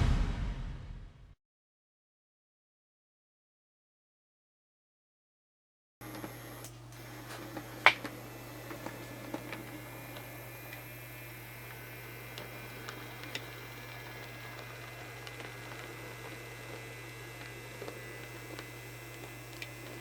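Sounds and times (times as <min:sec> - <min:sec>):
model locomotive hum: 0:06.0 - 0:20.0.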